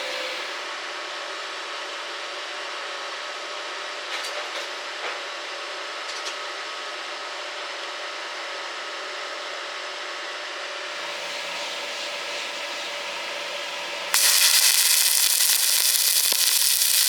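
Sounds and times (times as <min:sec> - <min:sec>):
welding arc crackling hiss: 0:14.1 - 0:17.0.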